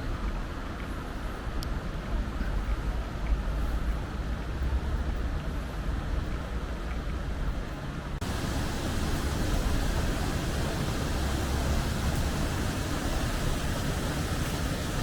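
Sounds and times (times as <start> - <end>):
outdoor rushing noise: 8.1 - 15.0.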